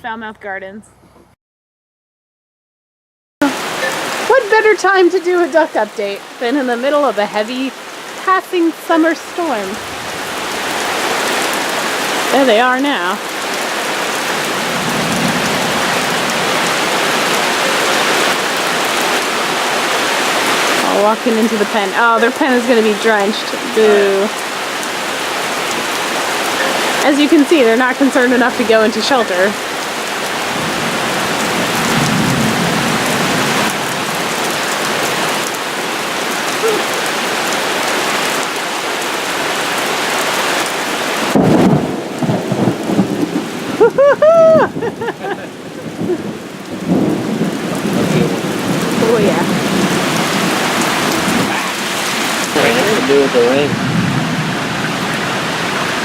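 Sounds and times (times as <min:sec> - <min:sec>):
heavy rain pouring: 0:03.4 - 0:56.0
low rumble of thunder: 0:30.4 - 0:34.4, 0:41.3 - 0:51.5, 0:53.6 - 0:55.6.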